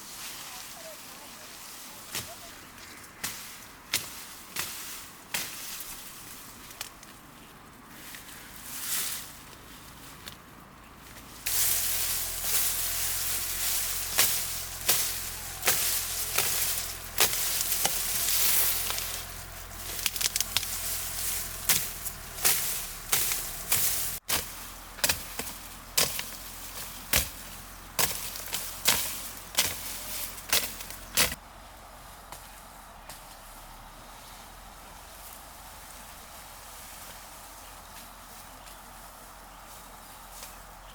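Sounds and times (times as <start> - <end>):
sharp chopping strikes: 21.5 - 26.4, 27.1 - 27.4, 28.0 - 31.4.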